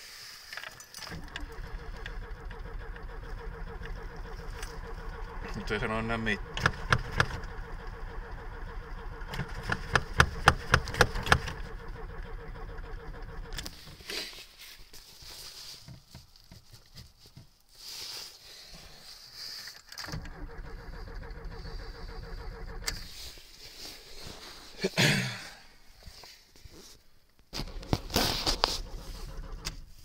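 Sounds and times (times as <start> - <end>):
car engine cranking: 0.6 - 15.0, 20.0 - 24.7, 27.5 - 30.0
engine firing sharp pops: 1.1 - 14.4, 27.5 - 30.0.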